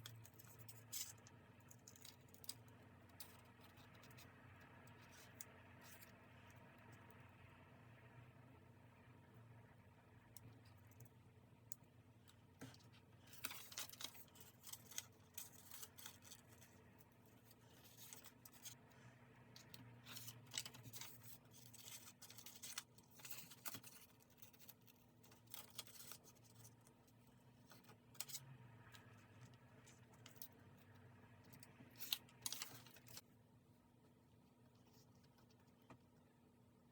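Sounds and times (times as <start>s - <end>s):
scissors cutting paper: 13.3s - 16.7s, 20.0s - 26.7s, 31.8s - 33.2s.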